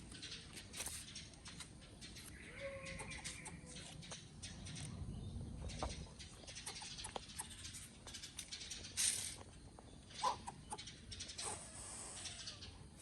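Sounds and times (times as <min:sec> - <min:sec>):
animal drawn-out call: 0:11.4 - 0:12.8.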